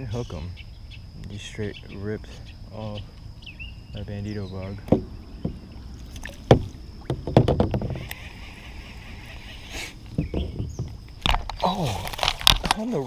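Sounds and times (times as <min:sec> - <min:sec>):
knocks against plastic kayak hull: 0:04.8 - 0:05.6, 0:06.4 - 0:08.0
fishing reel whirring: 0:07.6 - 0:10.1.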